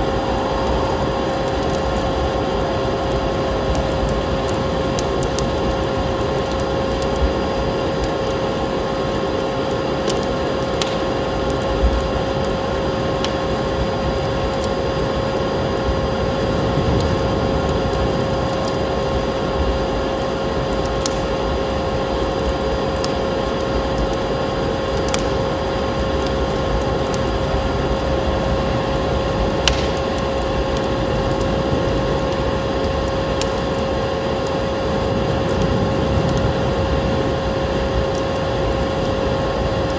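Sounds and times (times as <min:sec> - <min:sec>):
steady droning hum: 0:00.0 - 0:39.9
wood fire crackling: 0:00.0 - 0:39.9
sharp fire pops: 0:00.3 - 0:12.6, 0:20.7 - 0:21.4, 0:24.9 - 0:28.0, 0:29.2 - 0:34.6.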